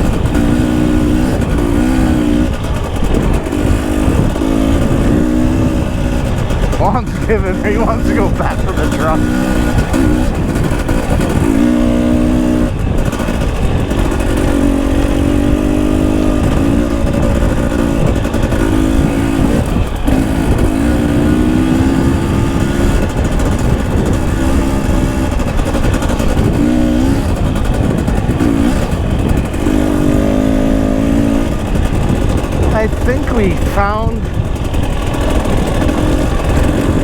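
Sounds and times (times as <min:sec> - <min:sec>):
constant rushing noise: 0:00.0 - 0:37.0
dirt bike engine revving: 0:00.0 - 0:37.0.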